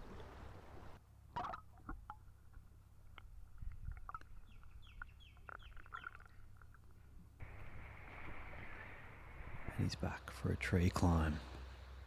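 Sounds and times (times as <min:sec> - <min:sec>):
bird chirping: 0:04.3 - 0:06.5.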